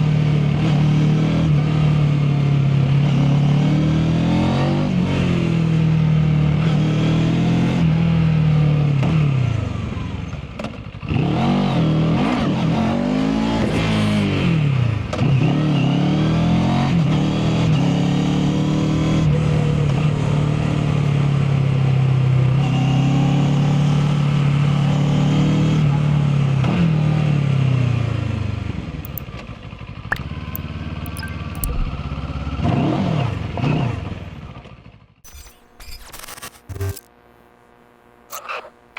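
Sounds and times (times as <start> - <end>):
motorcycle engine running: 25.9 - 35.1.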